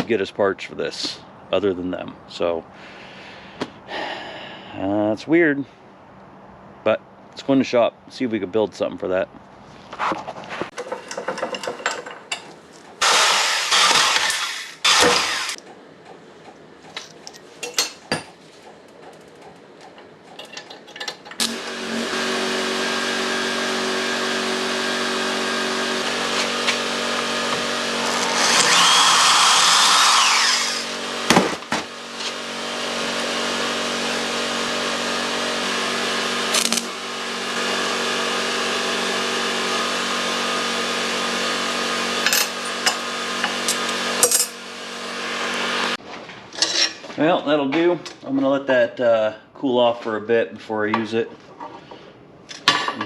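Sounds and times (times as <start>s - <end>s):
power tool bursts on metal: 13.0s - 15.6s, 21.4s - 22.7s, 28.0s - 32.5s, 36.3s - 37.8s
machine hum and hiss: 21.3s - 46.0s.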